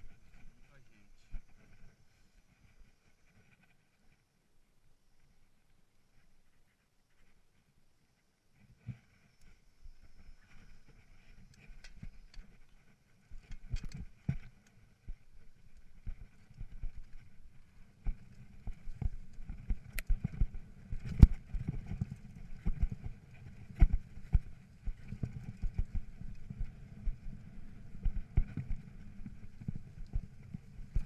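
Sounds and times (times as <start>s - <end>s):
bike tyres rumbling on trail: 8.6s - 31.0s
bike knocking and rattling: 13.4s - 31.0s.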